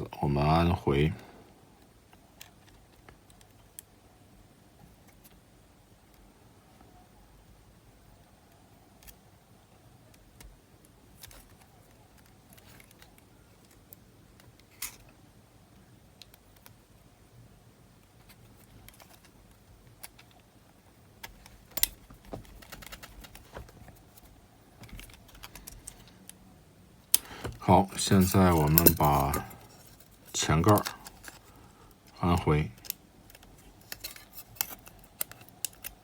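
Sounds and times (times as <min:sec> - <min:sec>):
small plastic parts clicking: 0:18.0 - 0:20.5, 0:21.2 - 0:26.4, 0:27.1 - 0:36.0.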